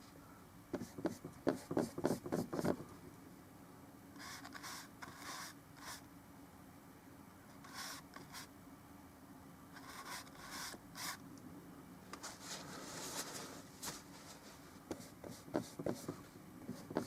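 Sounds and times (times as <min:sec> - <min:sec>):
paintbrush scrubbing with light hiss: 0:04.2 - 0:06.0, 0:07.5 - 0:08.5, 0:09.8 - 0:11.2, 0:12.2 - 0:17.0.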